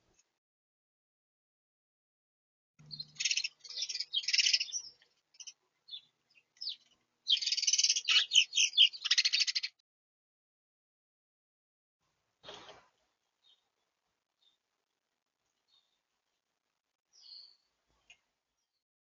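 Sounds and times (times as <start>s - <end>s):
songbird buzzy chattering calls: 6.6s - 9.8s.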